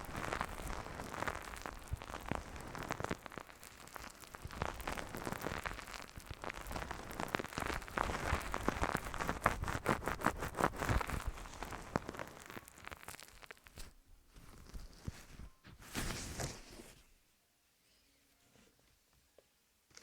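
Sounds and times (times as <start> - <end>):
wet lotion crackling on ear: 0.0 - 15.3.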